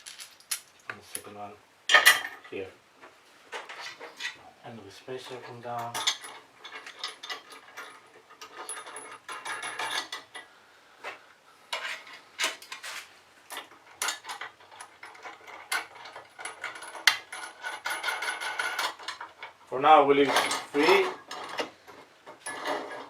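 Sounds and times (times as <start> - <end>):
metal parts clinking: 0.0 - 1.3, 1.9 - 2.5, 5.4 - 10.5, 13.5 - 19.6, 20.2 - 23.0.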